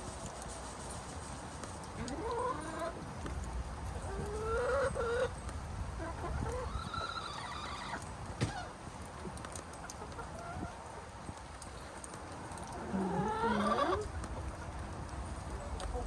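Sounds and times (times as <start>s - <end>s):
hens calling: 2.0s - 3.0s, 4.0s - 5.3s, 6.0s - 8.7s, 12.8s - 14.1s.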